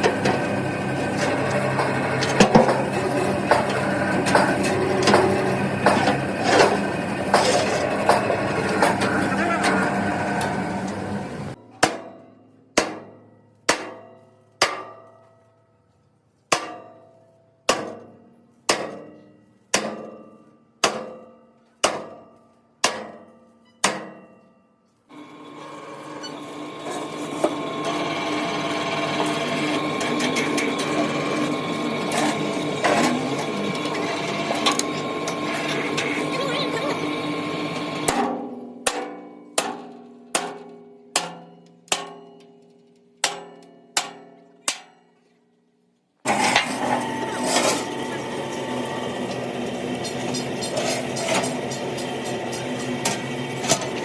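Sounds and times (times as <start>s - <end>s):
hammer blows on steel panels: 17.7s - 24.5s.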